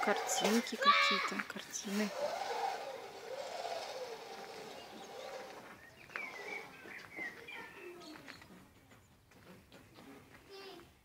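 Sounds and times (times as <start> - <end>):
low rising and falling bird calls: 0.0 - 8.6
high bird chirping: 0.3 - 8.5.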